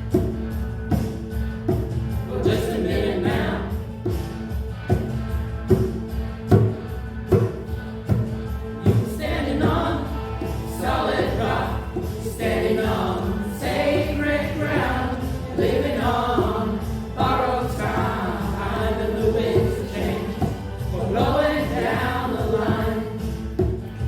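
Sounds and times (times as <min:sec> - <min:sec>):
instrumental backing: 0:00.0 - 0:24.0
choir singing: 0:02.2 - 0:03.9, 0:08.7 - 0:23.8.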